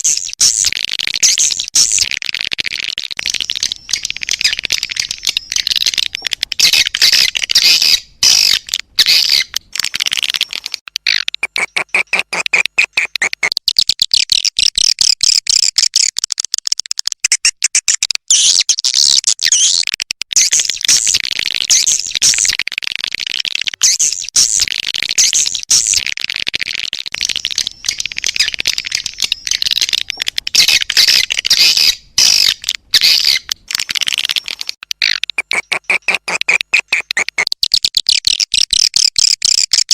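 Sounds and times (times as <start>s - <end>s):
swiftlets twittering: 0.0s - 14.4s, 23.5s - 38.4s.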